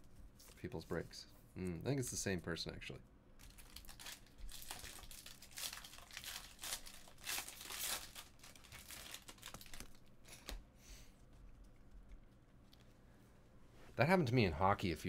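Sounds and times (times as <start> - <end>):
wrappers crinkling and tearing: 3.4 - 10.5
cards rustling: 3.4 - 10.6.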